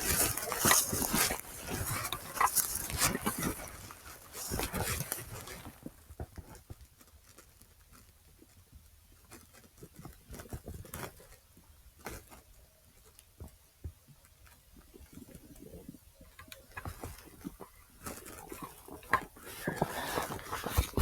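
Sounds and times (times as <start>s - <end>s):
footsteps: 0.0s - 6.0s
recorder handling noise: 0.0s - 6.0s.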